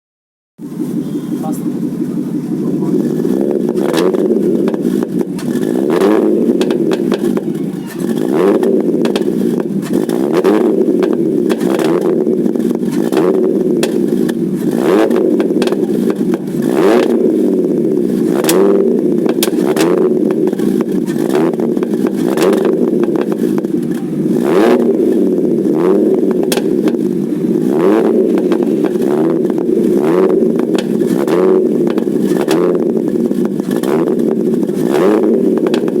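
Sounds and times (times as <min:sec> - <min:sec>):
car engine revving: 0:00.6 - 0:36.0
exhaust pops and crackles: 0:00.6 - 0:36.0.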